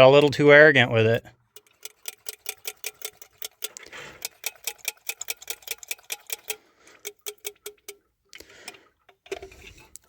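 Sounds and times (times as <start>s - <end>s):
rapid mechanical ticking: 1.4s - 9.2s.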